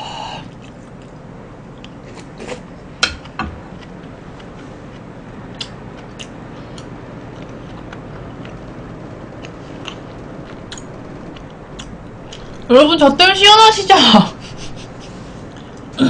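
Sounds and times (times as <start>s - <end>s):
low background hum: 0.0s - 16.0s
person chewing: 0.5s - 1.2s, 3.7s - 12.7s, 14.4s - 16.0s.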